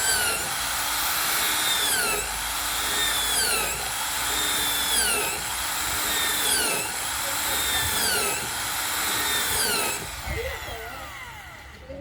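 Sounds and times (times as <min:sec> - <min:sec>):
electric drill whining: 0:00.0 - 0:12.0.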